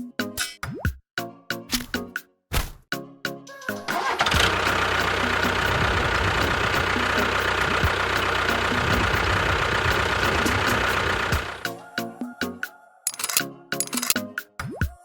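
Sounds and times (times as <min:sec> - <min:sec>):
tractor engine knocking: 0:04.0 - 0:11.6.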